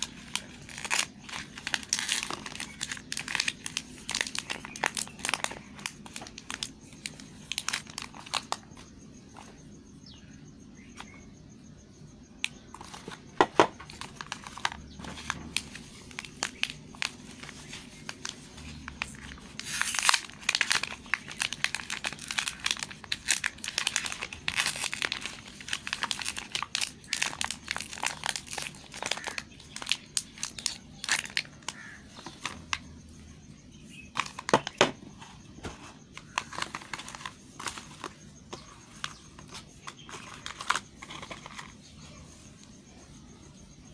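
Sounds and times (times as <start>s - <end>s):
wrappers crinkling and tearing: 0.0s - 8.8s, 12.8s - 32.9s, 36.1s - 41.8s.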